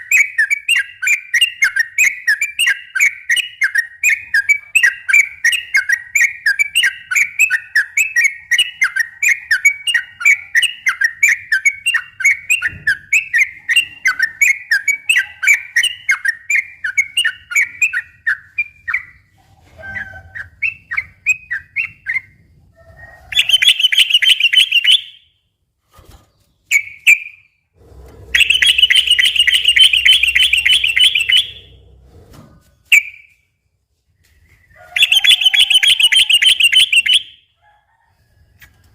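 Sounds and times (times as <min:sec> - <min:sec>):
bird chirping and trilling: 0:00.0 - 0:22.4, 0:23.0 - 0:25.4, 0:26.4 - 0:32.1, 0:34.4 - 0:37.4.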